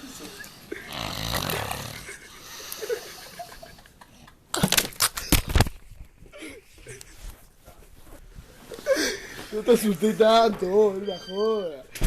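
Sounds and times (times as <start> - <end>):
man snoring: 0.7 - 2.2.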